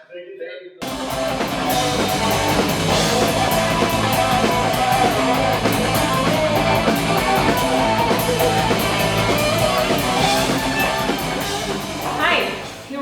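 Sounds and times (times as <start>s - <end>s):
distorted electric guitars: 0.8s - 13.0s
drum kit with cymbals: 0.8s - 13.0s.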